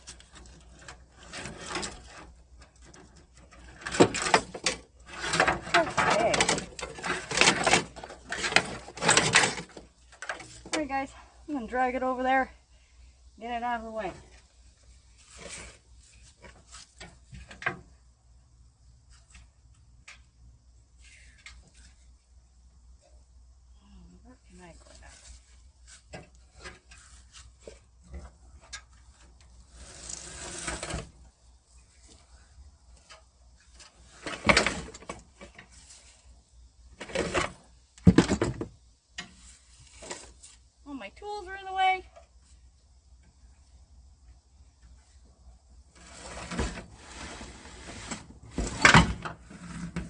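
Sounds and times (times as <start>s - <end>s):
tools clattering and scraping: 0.0s - 10.8s, 24.9s - 31.2s, 33.0s - 36.1s, 37.0s - 40.5s, 46.0s - 50.0s
metal door scraping on floor: 29.7s - 31.2s, 46.0s - 50.0s.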